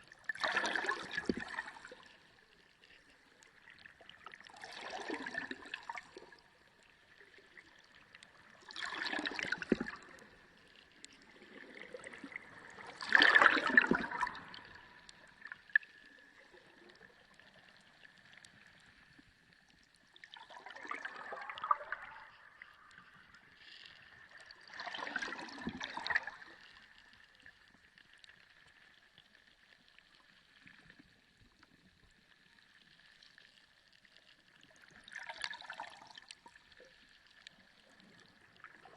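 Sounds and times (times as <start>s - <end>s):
ocean water surging underwater: 0.0s - 3.1s, 4.4s - 6.5s, 7.1s - 19.2s, 20.3s - 27.1s.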